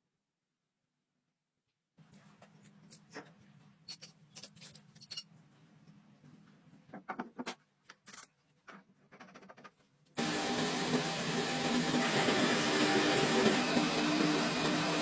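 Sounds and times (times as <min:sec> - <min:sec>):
metal tools clinking: 0:03.8 - 0:05.4.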